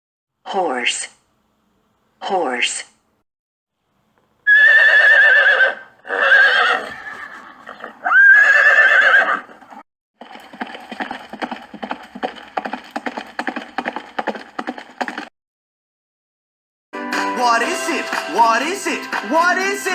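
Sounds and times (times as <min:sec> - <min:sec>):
horse whinnying: 0:04.5 - 0:09.8
hoofbeat clip-clops: 0:09.4 - 0:15.3.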